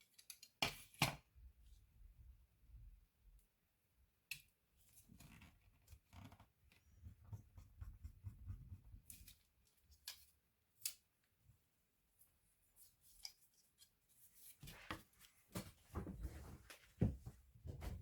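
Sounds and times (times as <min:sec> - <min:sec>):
soft rubbing: 0:14.4 - 0:18.0.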